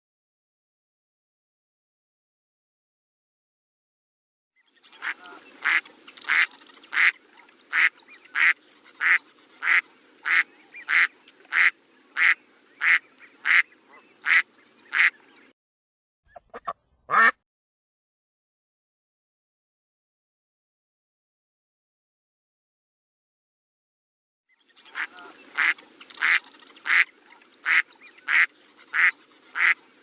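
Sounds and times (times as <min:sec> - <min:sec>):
duck quacking: 0:05.0 - 0:13.6, 0:14.2 - 0:15.2, 0:16.3 - 0:17.4, 0:25.0 - 0:29.8.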